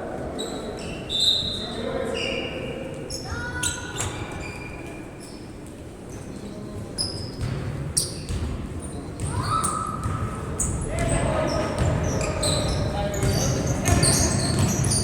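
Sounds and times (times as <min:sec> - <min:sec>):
sneaker squeaks: 0:00.3 - 0:15.0
basketball bouncing on court: 0:07.4 - 0:15.0.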